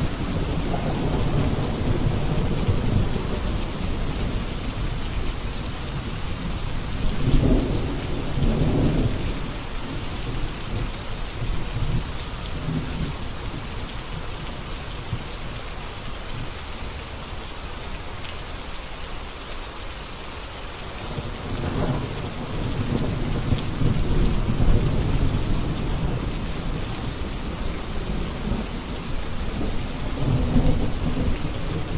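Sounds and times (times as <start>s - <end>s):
thunder rumbling: 0.0s - 10.8s, 21.0s - 31.9s
rain falling: 0.0s - 31.9s.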